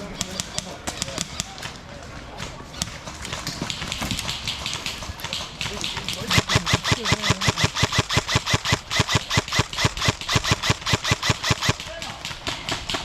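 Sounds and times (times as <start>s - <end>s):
airsoft gun firing rapid shots: 2.8s - 13.0s.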